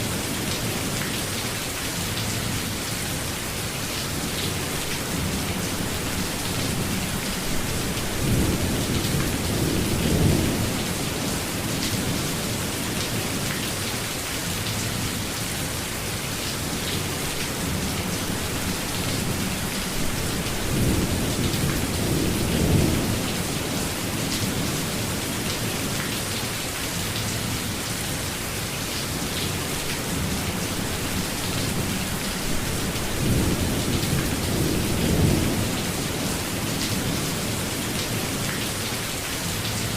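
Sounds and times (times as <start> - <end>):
steady rainfall: 0.0 - 39.9
low rolling thunder: 6.2 - 12.3, 18.5 - 25.0, 30.1 - 37.6.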